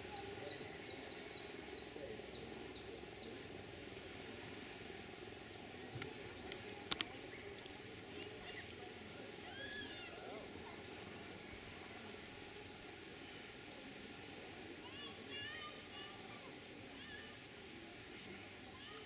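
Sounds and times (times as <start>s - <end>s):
outdoor background noise: 0.0s - 19.0s
birds chirping: 5.0s - 13.4s, 14.6s - 19.0s.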